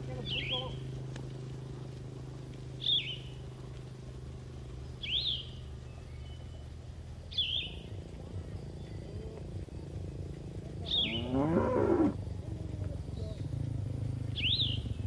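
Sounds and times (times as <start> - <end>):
bird chirping: 2.8 - 3.4, 5.0 - 9.9, 10.8 - 12.0, 14.2 - 15.0.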